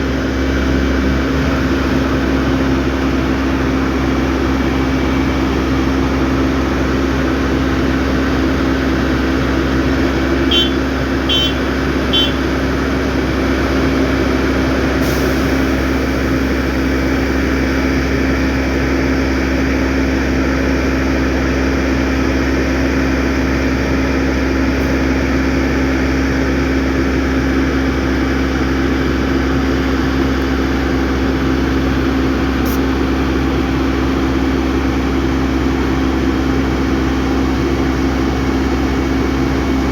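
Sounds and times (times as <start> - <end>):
heavy machinery engine hum: 0.0 - 39.9
short high beeps: 10.5 - 12.4.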